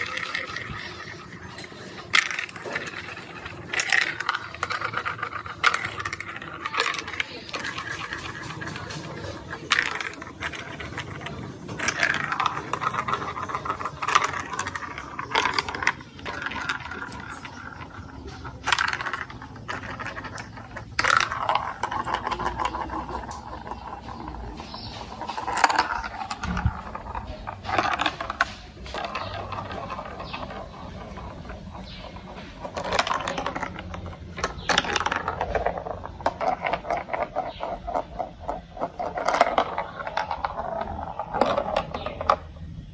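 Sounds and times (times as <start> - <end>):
marbles clicking and clacking: 0.0 - 42.9
marbles rolling on plastic track: 0.0 - 42.9.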